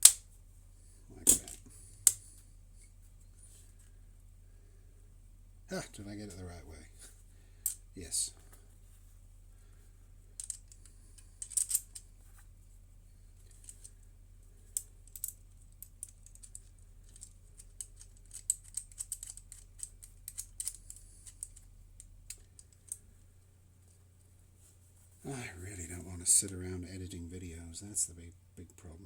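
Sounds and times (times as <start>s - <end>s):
metal parts clicking and tapping: 0.0s - 0.2s, 1.2s - 2.2s, 10.4s - 12.0s, 13.4s - 14.0s, 14.7s - 21.7s
low hum: 0.0s - 29.0s.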